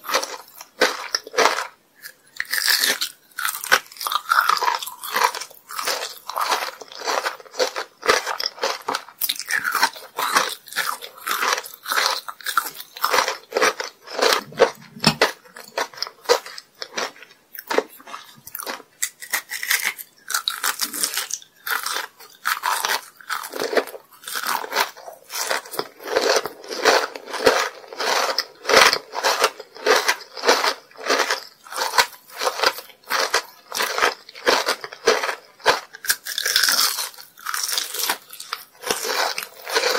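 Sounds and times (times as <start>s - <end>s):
crunchy candy chewing: 0.0s - 39.9s.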